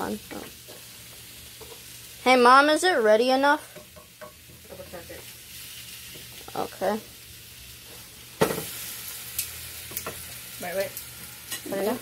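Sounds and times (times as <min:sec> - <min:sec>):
food sizzling on griddle: 0:00.0 - 0:12.0.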